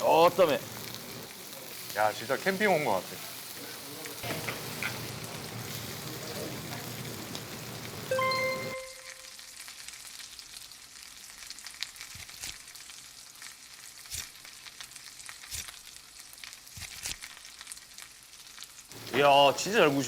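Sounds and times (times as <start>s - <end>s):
meat sizzling on a grill: 0.0s - 20.0s
pops and crackles: 11.5s - 19.1s.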